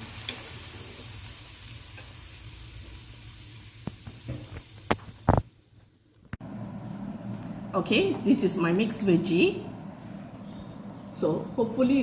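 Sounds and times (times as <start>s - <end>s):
food sizzling in a pan: 0.0s - 6.0s.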